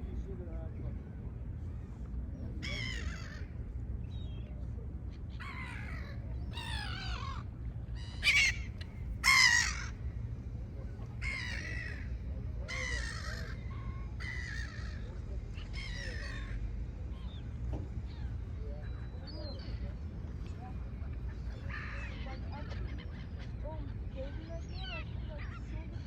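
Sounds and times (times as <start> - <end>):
gulls calling: 5.3 - 10.4, 11.1 - 19.8.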